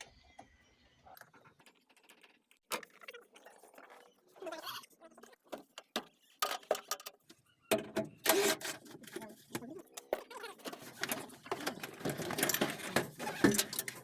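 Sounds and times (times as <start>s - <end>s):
hand tools and metal parts clicking: 5.6s - 14.0s.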